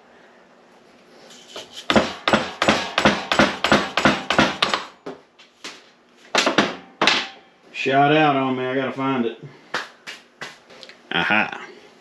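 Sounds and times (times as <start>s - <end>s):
hammer strikes on metal: 1.9s - 5.0s, 6.4s - 7.4s.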